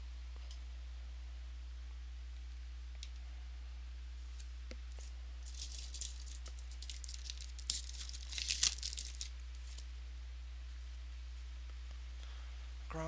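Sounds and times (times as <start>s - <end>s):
cards and packaging crinkling: 4.3s - 9.9s
sharp crackles: 4.3s - 9.9s.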